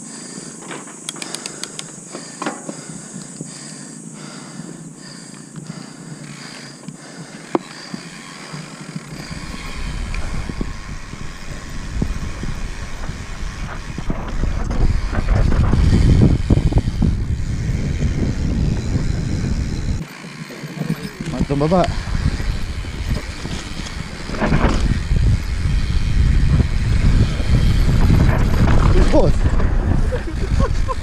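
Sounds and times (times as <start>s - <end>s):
bike rattling over bumps: 0.0s - 31.0s
bike tyres rolling on dirt: 0.0s - 31.0s
wind rumbling on microphone: 7.9s - 20.1s, 20.7s - 31.0s.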